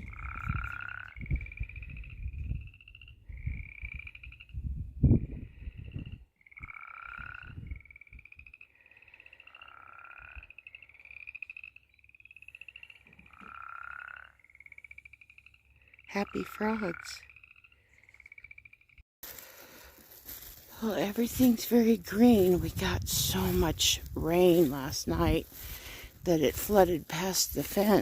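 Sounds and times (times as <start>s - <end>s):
chorus of frogs calling: 0.0s - 4.6s, 6.4s - 19.5s
low rumbling microphone noise: 0.0s - 6.3s, 19.9s - 27.1s.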